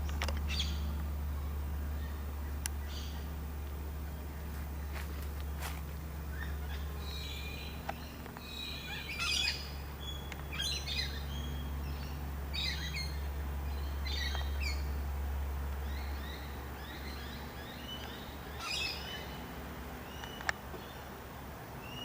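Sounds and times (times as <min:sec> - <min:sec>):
steady low hum: 0:00.0 - 0:22.0
birds chirping and squawking: 0:04.1 - 0:15.0, 0:15.8 - 0:21.0.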